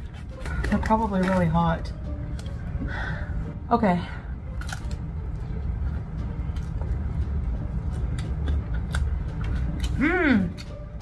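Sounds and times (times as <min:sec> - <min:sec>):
steady low rumble: 0:01.6 - 0:09.9
person chewing pizza: 0:04.5 - 0:11.0.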